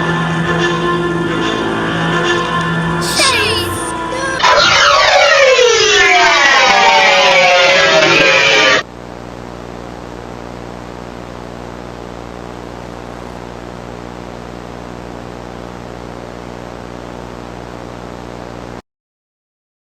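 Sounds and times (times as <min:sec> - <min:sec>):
static hiss: 0:08.7 - 0:18.8
low electrical buzzing hum: 0:08.8 - 0:18.8.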